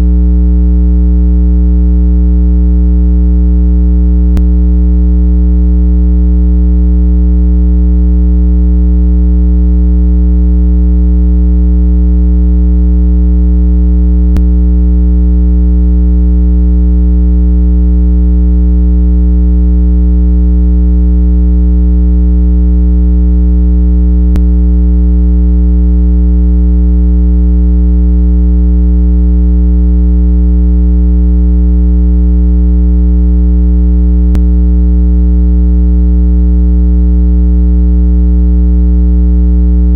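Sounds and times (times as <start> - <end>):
low electronic tone: 0.0 - 18.8, 22.3 - 27.2, 34.2 - 34.6.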